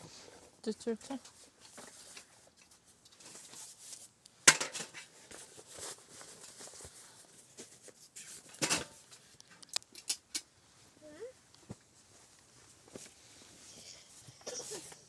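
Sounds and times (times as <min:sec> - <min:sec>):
objects knocking and clattering: 0:04.4 - 0:05.5, 0:08.4 - 0:09.2.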